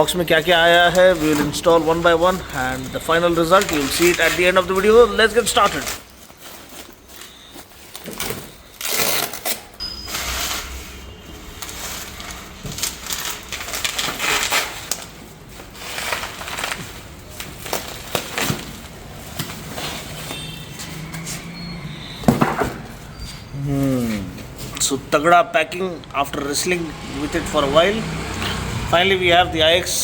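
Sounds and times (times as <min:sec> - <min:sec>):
packaging tearing and crinkling: 0:00.4 - 0:10.8, 0:11.4 - 0:20.2.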